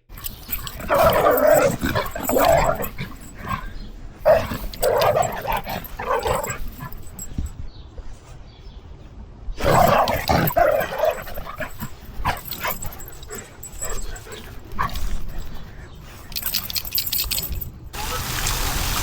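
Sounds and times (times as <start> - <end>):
dog barking and yipping: 0.0 - 7.5, 9.6 - 15.7.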